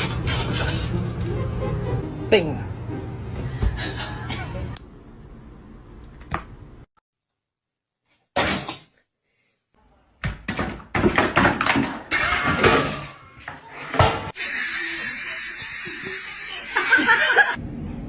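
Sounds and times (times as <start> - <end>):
knocks thuds and clatter: 10.2 - 13.1.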